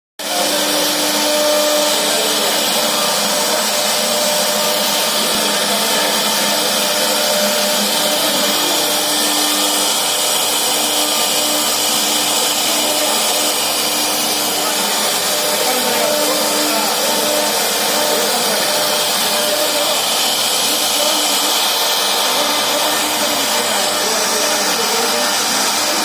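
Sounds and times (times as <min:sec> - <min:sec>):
router spindle cutting wood: 0:00.2 - 0:26.0.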